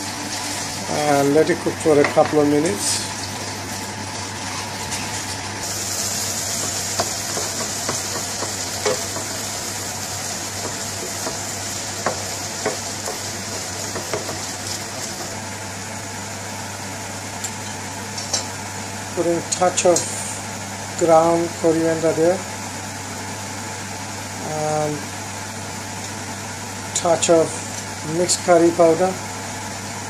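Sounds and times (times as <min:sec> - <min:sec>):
onions sizzling in a frying pan: 0:00.0 - 0:30.0
wooden spoon knocking on pan: 0:06.6 - 0:09.4, 0:10.6 - 0:11.4, 0:12.0 - 0:13.3, 0:13.9 - 0:14.4.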